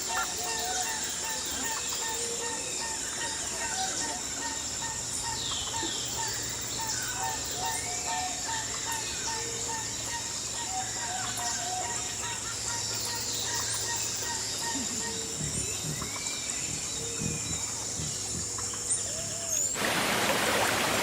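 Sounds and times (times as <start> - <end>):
birds chirping: 0.0 - 19.8
insect drone: 0.0 - 21.0.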